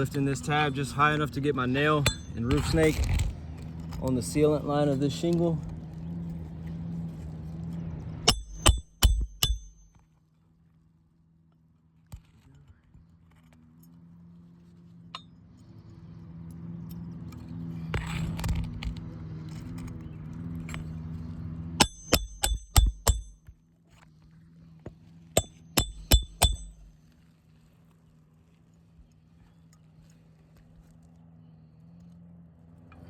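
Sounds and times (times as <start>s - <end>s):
hammer striking nails metallic ring: 2.0s - 2.8s, 8.3s - 10.0s, 21.8s - 23.5s, 25.4s - 27.0s
low hum: 2.0s - 3.9s, 25.4s - 27.3s.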